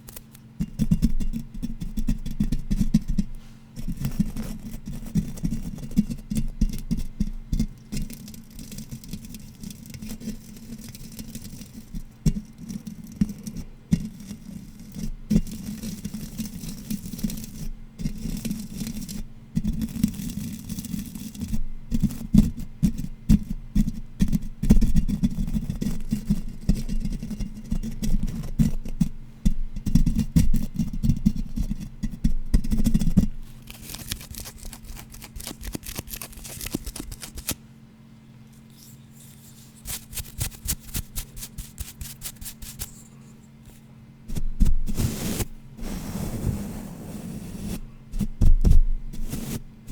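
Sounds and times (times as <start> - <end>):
fast tapping and scratching: 0.6 - 37.6, 39.8 - 43.0.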